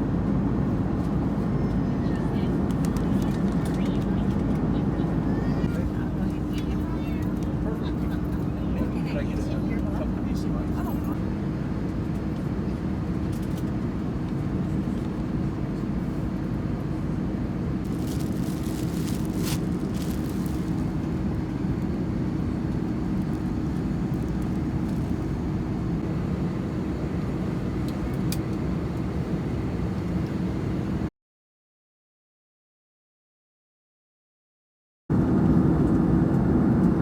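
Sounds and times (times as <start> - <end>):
airliner cabin engine drone: 0.0 - 31.1, 35.1 - 37.0.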